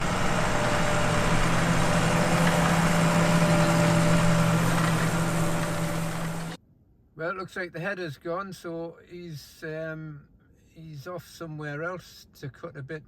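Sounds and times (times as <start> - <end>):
engine humming steadily: 0.0 - 6.6.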